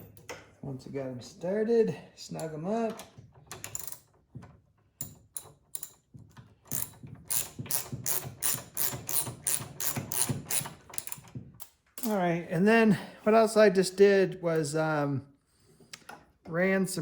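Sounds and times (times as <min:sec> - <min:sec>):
ratchet wrench clicking: 0:06.7 - 0:11.7.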